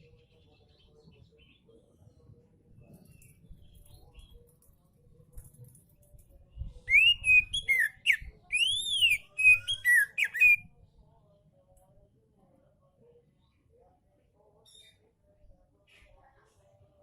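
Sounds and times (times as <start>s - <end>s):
bird whistling song: 6.9s - 10.7s.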